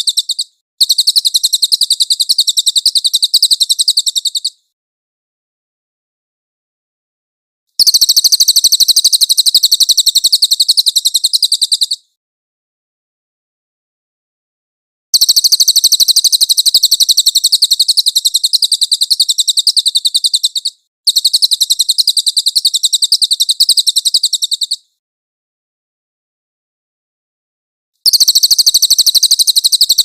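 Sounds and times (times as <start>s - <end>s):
songbird high-pitched trill: 0.0s - 4.6s, 7.8s - 12.0s, 15.2s - 24.9s, 28.0s - 30.0s.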